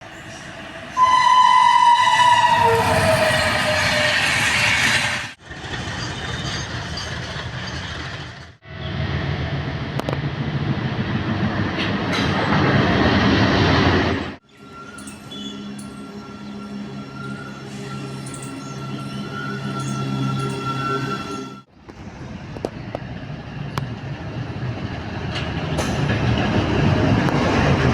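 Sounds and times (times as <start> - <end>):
train rumble and rail clatter: 0.0 - 27.9
train horn: 0.9 - 4.5.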